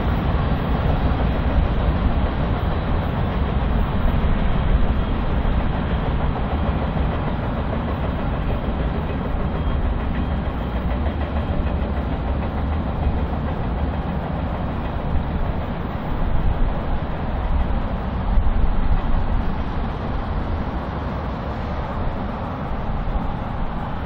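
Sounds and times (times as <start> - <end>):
freight train cars rolling: 0.0 - 24.0.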